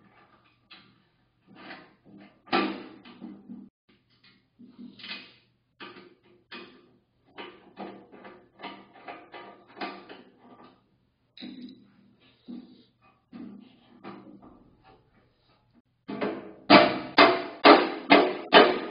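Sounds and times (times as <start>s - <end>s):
hand tools knocking on metal: 16.1s - 18.9s.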